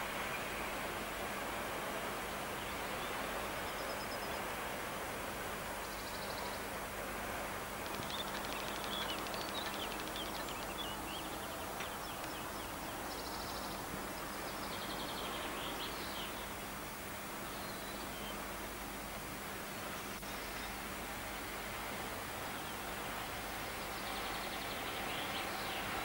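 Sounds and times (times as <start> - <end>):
steady hiss: 0.0 - 26.0
small birds chirping and trilling: 7.8 - 16.5.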